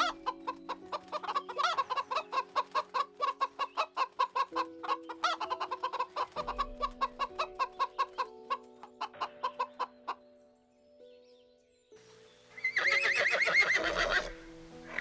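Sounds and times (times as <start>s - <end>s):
chicken clucking rapidly: 0.0s - 9.9s
soft music with held notes: 0.0s - 15.0s.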